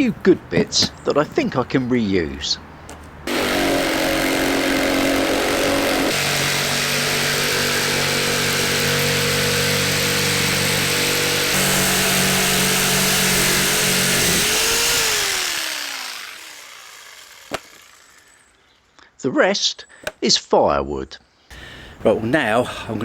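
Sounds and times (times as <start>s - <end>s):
power saw cutting timber: 3.3s - 18.6s.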